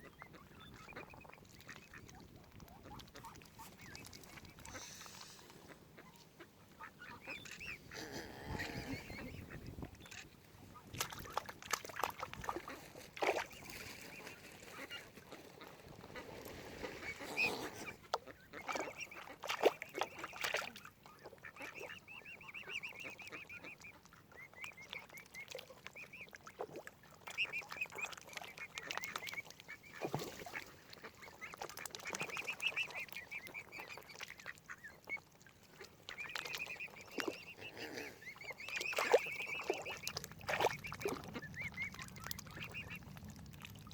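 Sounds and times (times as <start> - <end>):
ducks quacking: 0.0 - 23.9, 27.3 - 43.1
waterfowl honking: 2.8 - 10.2, 27.3 - 43.0.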